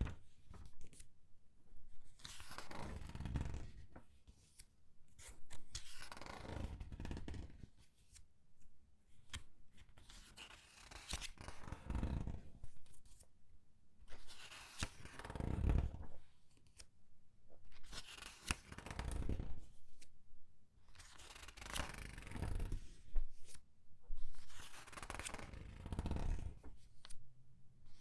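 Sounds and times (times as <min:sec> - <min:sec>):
paper pages turning: 0:10.0 - 0:11.6, 0:14.2 - 0:15.2, 0:17.8 - 0:19.4, 0:21.0 - 0:23.6, 0:24.3 - 0:27.2.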